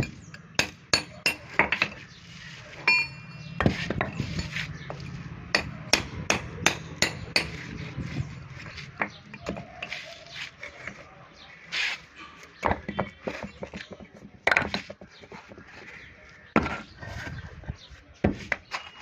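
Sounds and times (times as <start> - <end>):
hammers knocking on concrete: 0.0 - 2.0, 2.8 - 7.7, 12.6 - 15.6.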